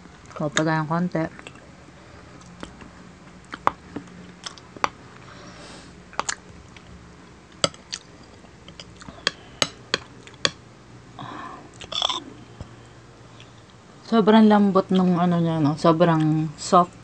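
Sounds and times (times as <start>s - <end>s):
chewing soft cake: 1.3s - 5.3s, 6.1s - 10.5s, 11.7s - 13.8s
sharp mouth clicks and smacks: 6.1s - 6.9s.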